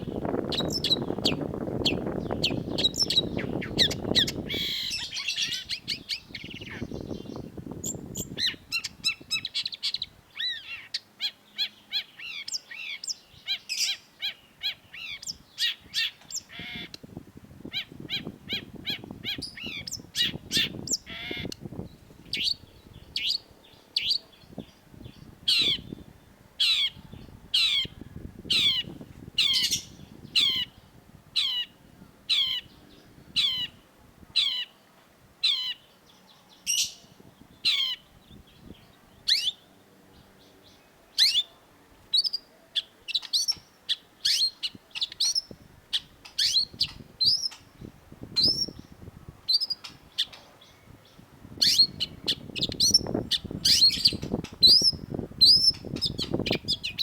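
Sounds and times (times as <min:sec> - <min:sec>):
bird harsh calls: 0:00.0 - 0:17.0, 0:17.7 - 0:24.6, 0:26.6 - 0:33.8, 0:36.7 - 0:39.7.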